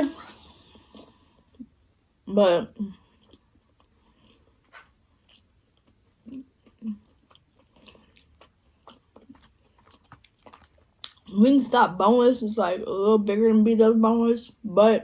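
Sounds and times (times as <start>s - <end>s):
person chewing and biting: 3.1s - 11.3s.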